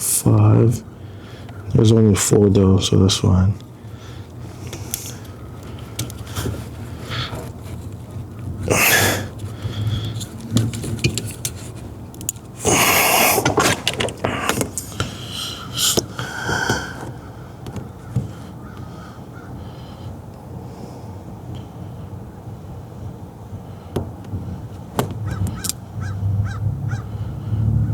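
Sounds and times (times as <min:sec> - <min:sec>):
crows cawing: 0:14.2 - 0:20.2, 0:25.2 - 0:27.2.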